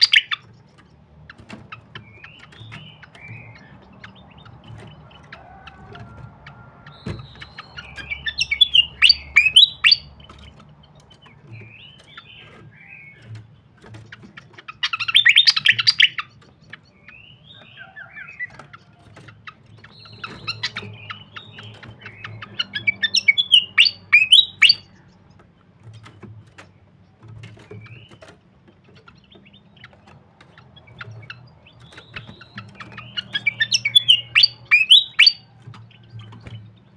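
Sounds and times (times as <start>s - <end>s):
bird chirping rapidly: 0.0s - 5.5s, 6.1s - 36.9s
soft bird calls: 0.0s - 36.9s.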